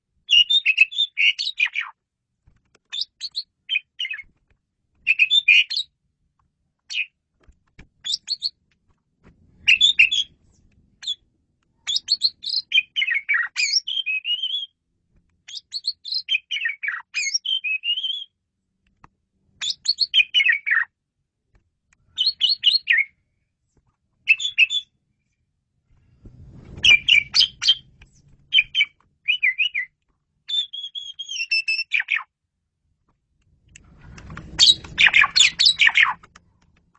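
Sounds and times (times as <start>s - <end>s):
bird singing chirps and whistles: 0.3s - 2.0s, 2.9s - 4.3s, 5.0s - 5.9s, 6.9s - 7.1s, 8.0s - 8.6s, 9.6s - 10.4s, 11.0s - 11.2s, 11.8s - 14.8s, 15.5s - 18.4s, 19.6s - 20.9s, 22.2s - 23.2s, 24.3s - 24.9s, 26.8s - 27.9s, 28.5s - 32.3s, 34.6s - 36.2s.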